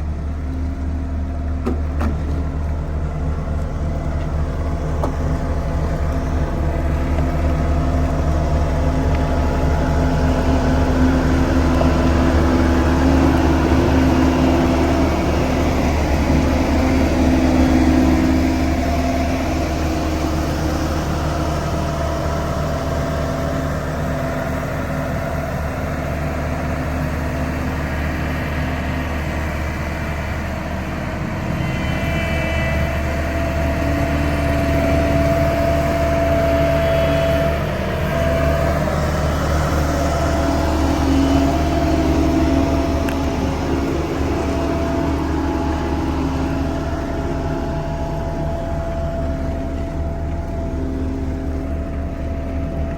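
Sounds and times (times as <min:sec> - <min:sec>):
heavy diesel engine running: 0:00.0 - 0:52.9.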